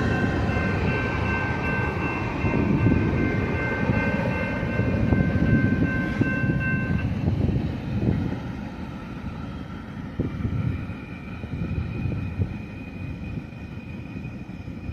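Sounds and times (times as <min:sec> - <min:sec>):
high ringing tones: 0:00.0 - 0:07.3
train wheels rumbling: 0:00.0 - 0:14.9.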